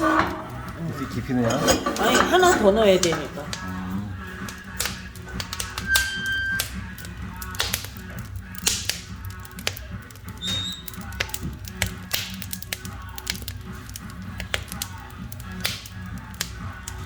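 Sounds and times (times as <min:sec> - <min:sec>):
firewood crackling and popping: 0:00.0 - 0:17.0
high whistle: 0:05.8 - 0:06.8, 0:10.4 - 0:10.9.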